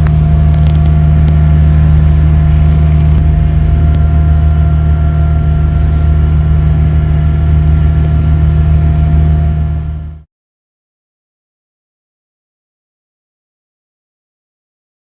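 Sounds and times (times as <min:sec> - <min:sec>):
engine droning steadily: 0:00.0 - 0:10.3.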